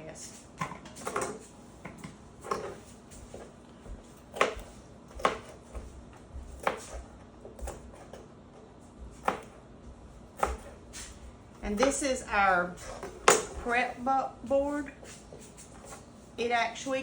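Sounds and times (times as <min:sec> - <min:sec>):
knife chopping on cutting board: 0:04.2 - 0:05.9, 0:06.6 - 0:08.1, 0:09.1 - 0:09.6, 0:10.4 - 0:10.8.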